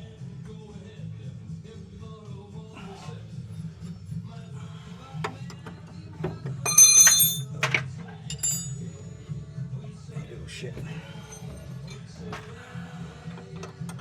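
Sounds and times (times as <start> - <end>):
metal tools knocking and clinking: 6.6 - 8.9
loud ringing metal clang: 6.7 - 7.6.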